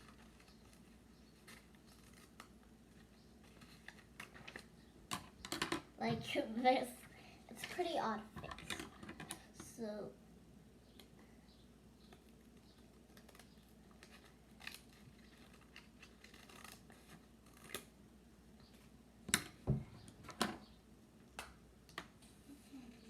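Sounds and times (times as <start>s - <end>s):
scissors cutting paper: 0.0s - 4.6s, 13.1s - 17.9s.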